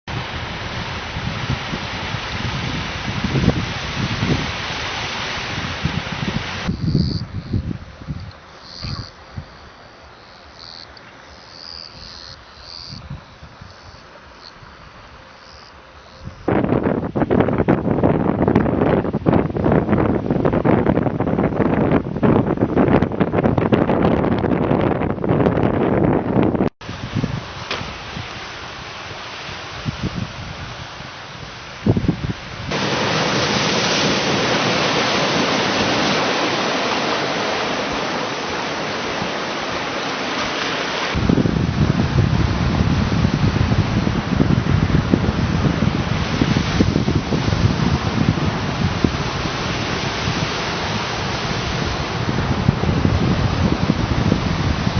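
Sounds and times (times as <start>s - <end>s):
sea surf rushing: 0.0s - 54.9s
wind buffeting microphone: 0.1s - 9.8s, 12.0s - 14.0s, 16.0s - 54.9s
steady hiss: 0.1s - 17.2s, 26.8s - 44.4s.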